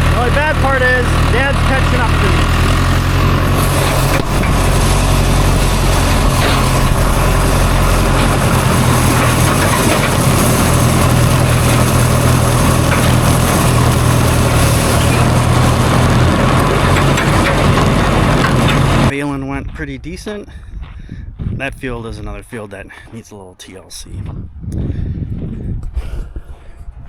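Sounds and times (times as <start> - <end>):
tractor engine running: 0.0 - 19.2.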